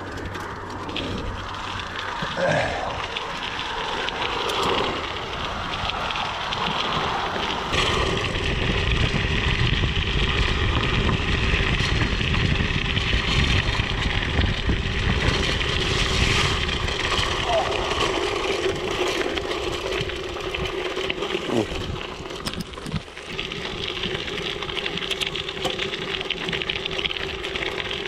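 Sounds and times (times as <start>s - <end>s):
bike tyres rolling over ground: 0.0s - 28.0s
wind on microphone: 4.2s - 18.2s.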